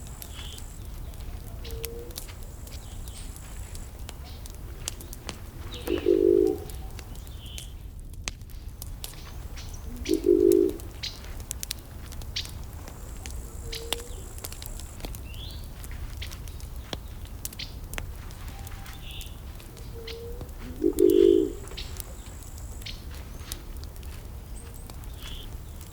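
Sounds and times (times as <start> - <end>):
burning wood crackling and popping: 0.0 - 25.9
small birds chirping faintly: 0.0 - 25.9
steady low rumble: 0.0 - 25.9
low cooing bird call: 0.2 - 3.3, 5.6 - 7.6, 9.7 - 11.2, 13.4 - 14.8, 18.4 - 23.6.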